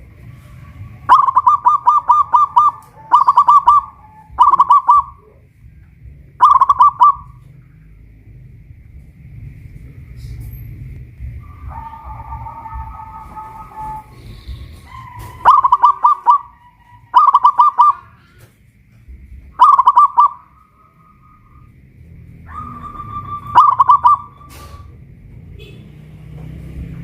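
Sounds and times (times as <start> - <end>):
dove cooing: 0.4 - 5.5, 6.4 - 7.4, 11.4 - 18.3, 19.5 - 21.7, 22.5 - 24.9.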